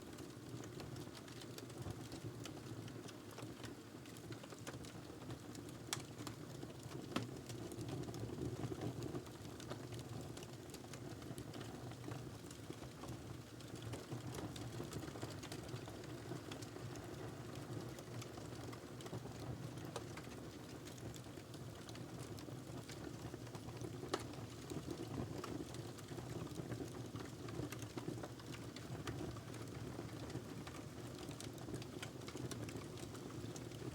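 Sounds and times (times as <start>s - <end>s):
wood fire crackling: 10.4s - 33.9s.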